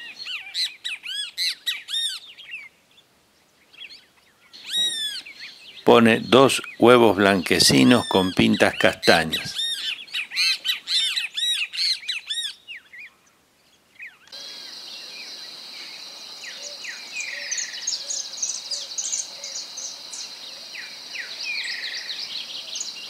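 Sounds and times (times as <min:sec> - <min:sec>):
bird chirps: 0:03.8 - 0:13.2, 0:14.0 - 0:23.0
high insect drone: 0:14.4 - 0:23.0.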